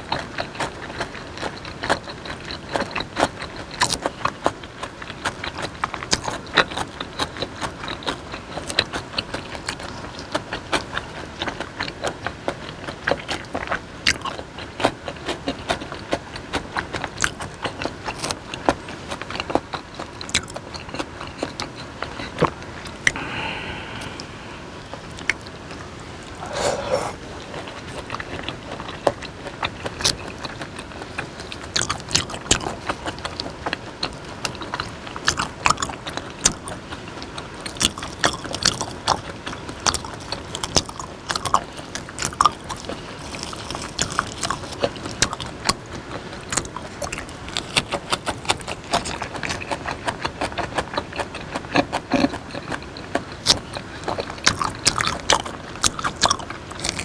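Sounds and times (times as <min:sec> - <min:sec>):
wet chewing: 0:00.0 - 0:57.0
mouth clicks: 0:20.3 - 0:25.5, 0:26.2 - 0:30.5.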